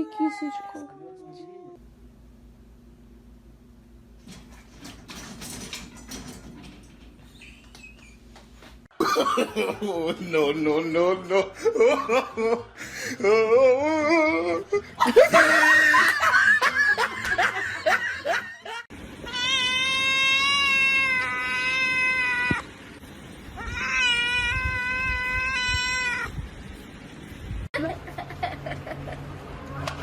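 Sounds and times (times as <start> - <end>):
cat yowling: 19.3 - 22.7, 23.6 - 26.4.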